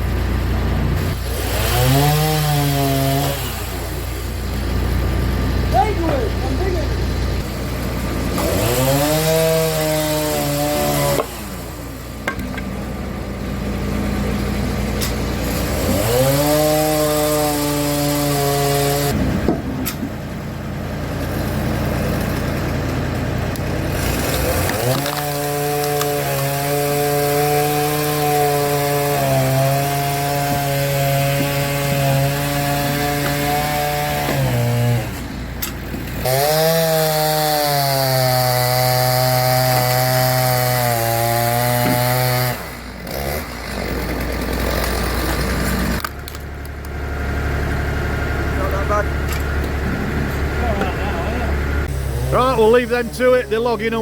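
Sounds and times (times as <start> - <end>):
log splitter mechanical whine: 0.0 - 54.0
tractor engine running: 3.4 - 9.4, 11.2 - 16.4, 19.1 - 26.2, 42.8 - 54.0.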